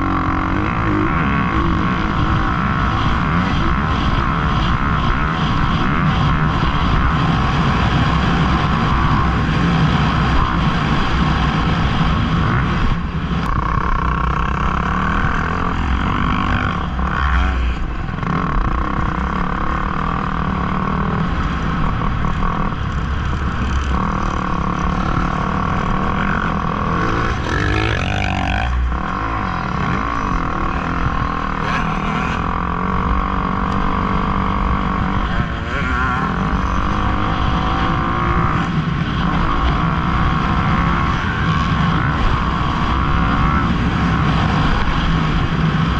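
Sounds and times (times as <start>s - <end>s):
dirt bike engines revving: 0.0s - 45.9s.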